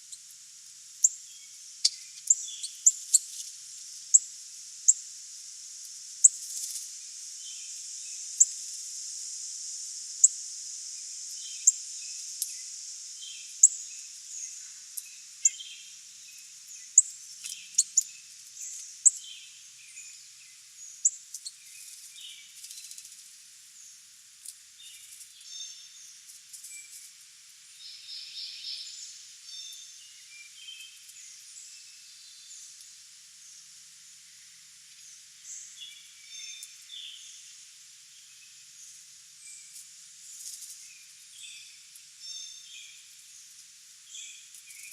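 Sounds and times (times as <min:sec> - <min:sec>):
steady high hiss: 0:00.0 - 0:44.9
soft bird chirps: 0:01.0 - 0:03.5, 0:11.3 - 0:23.2, 0:27.7 - 0:33.7, 0:34.3 - 0:44.9.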